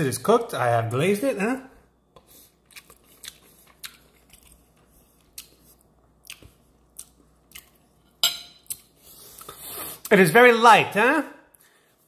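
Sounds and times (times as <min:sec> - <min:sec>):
faint chewing: 0:02.1 - 0:08.0.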